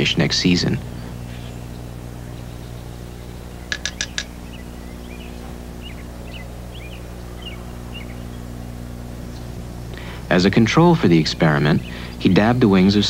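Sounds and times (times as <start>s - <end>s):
birds calling: 0.0s - 13.0s
steady low hum: 0.0s - 13.0s.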